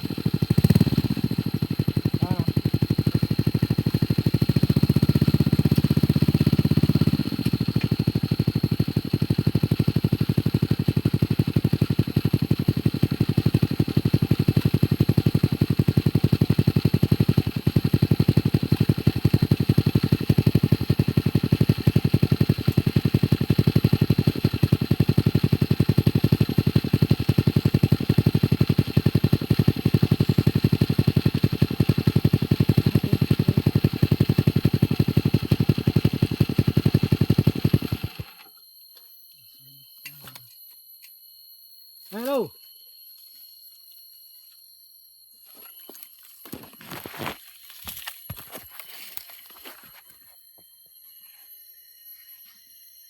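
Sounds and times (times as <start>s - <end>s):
motorcycle engine running: 0.0s - 38.5s.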